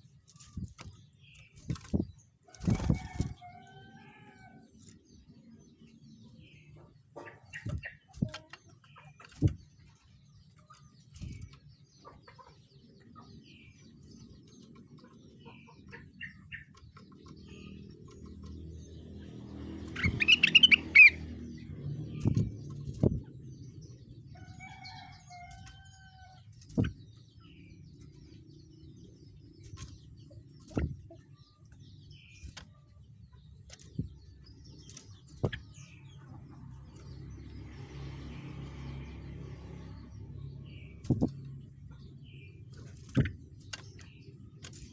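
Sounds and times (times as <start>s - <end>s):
songbird chirping: 0.0s - 44.9s
sharp clicks and knocks: 29.6s - 32.8s, 33.4s - 35.9s, 40.9s - 44.9s.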